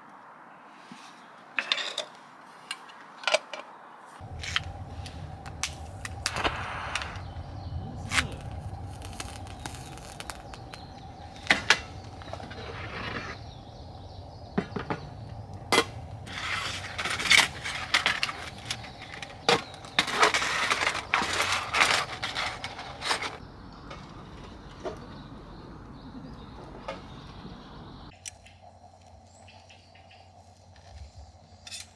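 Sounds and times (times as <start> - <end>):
rustling and scraping: 0.8 - 25.1.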